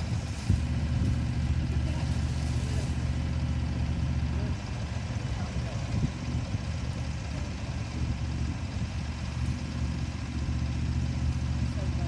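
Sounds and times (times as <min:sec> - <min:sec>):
tractor engine running steadily: 0:00.0 - 0:12.0.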